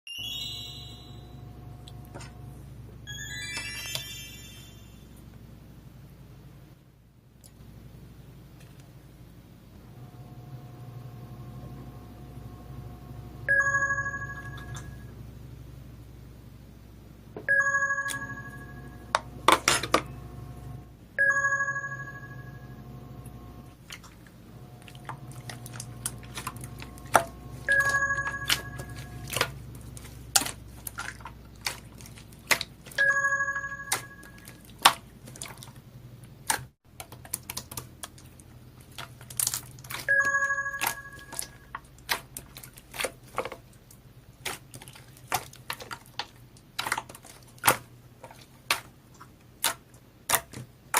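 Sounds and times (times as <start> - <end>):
bell-like chime: 0.1 - 1.9, 3.1 - 5.2, 13.5 - 15.1, 17.5 - 19.1, 21.2 - 22.7, 33.0 - 34.4.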